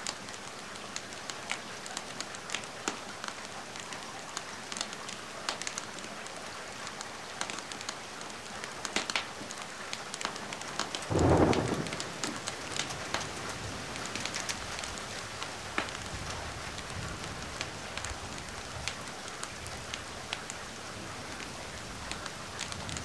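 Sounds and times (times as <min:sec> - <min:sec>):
wood fire crackling and popping: 0:00.0 - 0:03.8, 0:04.4 - 0:06.1, 0:06.8 - 0:20.6
steady rain: 0:00.0 - 0:23.0
low rumble of thunder: 0:11.1 - 0:14.8.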